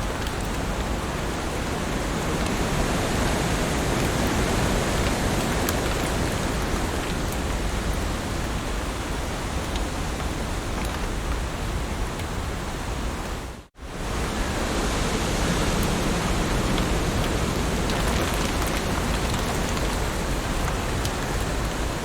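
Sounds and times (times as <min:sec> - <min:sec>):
heavy rain hiss: 0:00.0 - 0:22.0.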